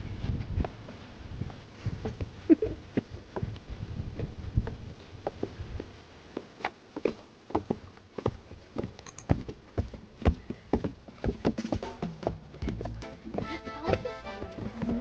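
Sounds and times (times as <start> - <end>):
footsteps on a trail: 0.0 - 15.0.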